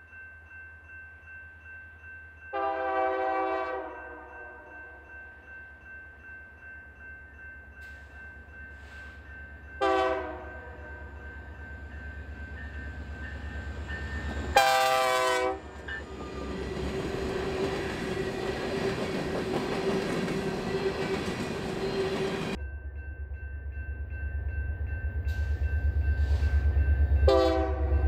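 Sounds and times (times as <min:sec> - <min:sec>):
train rolling on rails: 0:00.1 - 0:28.0
train air horn blast: 0:02.6 - 0:04.0, 0:09.8 - 0:10.5, 0:14.6 - 0:15.6, 0:27.3 - 0:27.9.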